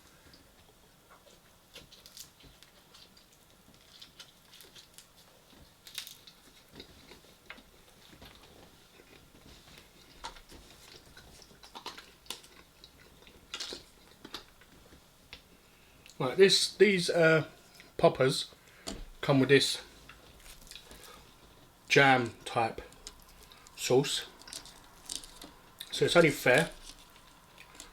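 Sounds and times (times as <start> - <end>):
chewing and biting crunches: 1.1 - 16.2, 20.0 - 21.8, 22.8 - 27.9.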